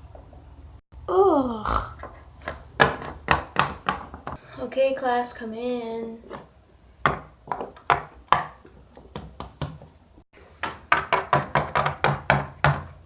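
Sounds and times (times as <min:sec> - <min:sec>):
toy figures knocking on hard surface: 0:02.8 - 0:04.4, 0:07.0 - 0:09.8, 0:10.6 - 0:13.0.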